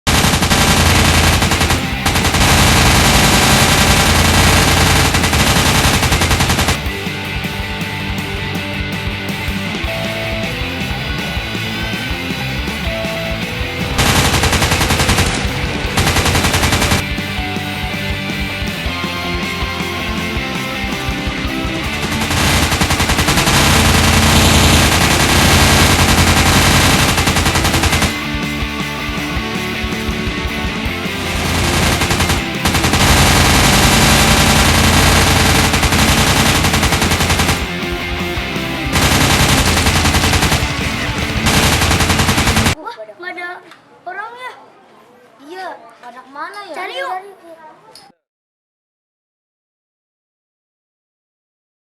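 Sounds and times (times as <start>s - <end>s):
rapid automatic gunfire: 0.1s - 7.0s, 13.8s - 17.1s, 20.9s - 28.4s, 29.8s - 42.8s
music: 0.1s - 42.8s.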